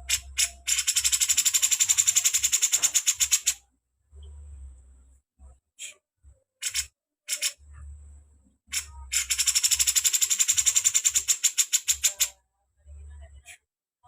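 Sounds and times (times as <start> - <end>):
faint low hum: 0.0 - 13.7
bird fast dry chatter: 0.1 - 3.6, 6.6 - 7.6, 8.7 - 12.3.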